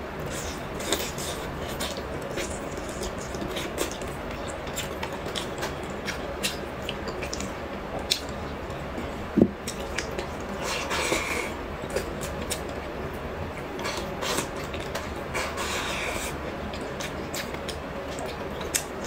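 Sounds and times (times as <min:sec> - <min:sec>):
chewing mouth sounds: 0:00.3 - 0:08.4.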